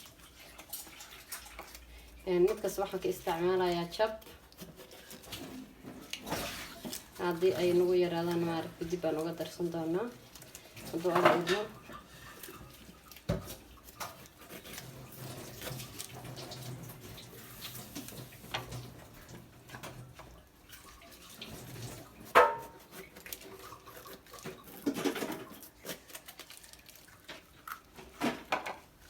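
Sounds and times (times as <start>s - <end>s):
utensils clattering on work surface: 10.8s - 17.1s.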